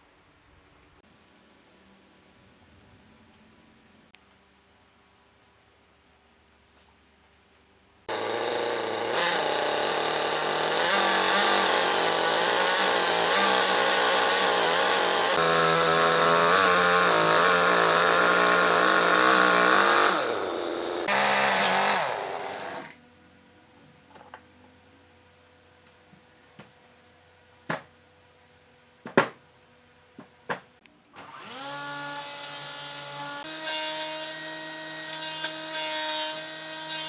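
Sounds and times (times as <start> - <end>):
power tool cutting wood: 8.1 - 23.0, 31.2 - 37.0.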